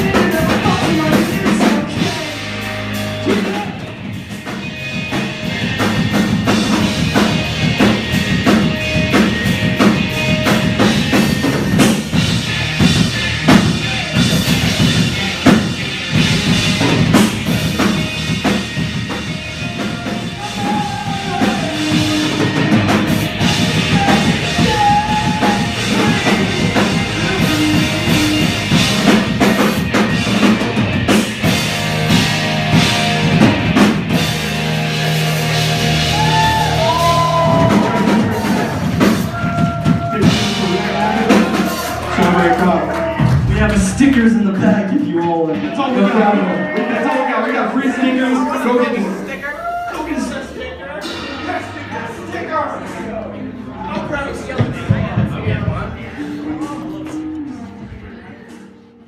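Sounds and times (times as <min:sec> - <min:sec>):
drum kit hitting hard: 0:00.0 - 0:44.7, 0:51.0 - 0:53.0
live rock band playing: 0:00.0 - 0:59.0.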